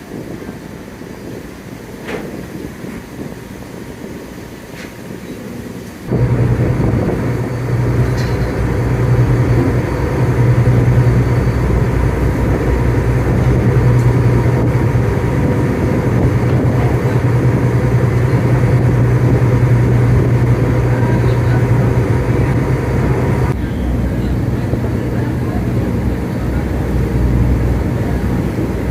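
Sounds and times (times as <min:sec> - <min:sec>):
ferry engine droning: 0:06.1 - 0:28.9.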